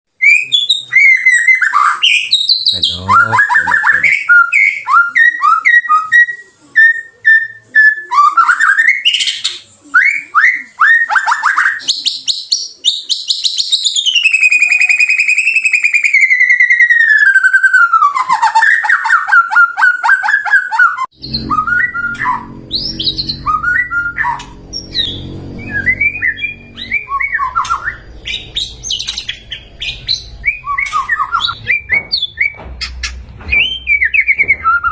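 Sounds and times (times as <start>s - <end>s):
bird singing whistles and trills: 0.2s - 32.9s, 33.5s - 34.9s
low background rumble: 21.2s - 34.8s.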